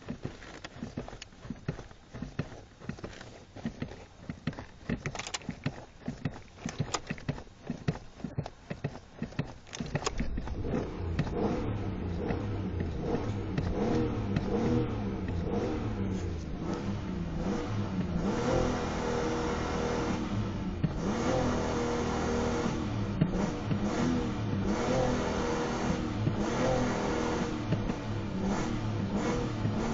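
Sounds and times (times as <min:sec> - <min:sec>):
irregular clicks and knocks: 0:00.0 - 0:18.4
car engine running: 0:00.0 - 0:29.9.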